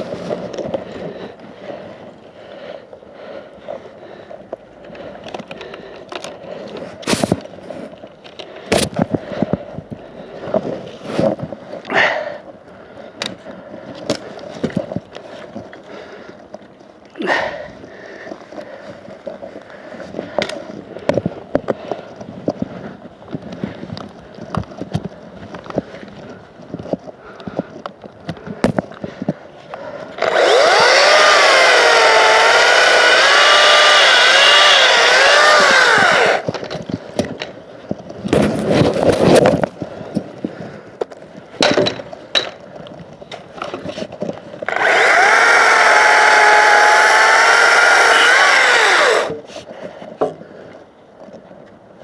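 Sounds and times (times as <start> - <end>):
electric chainsaw cutting wood: 30.2 - 36.5, 44.6 - 49.4.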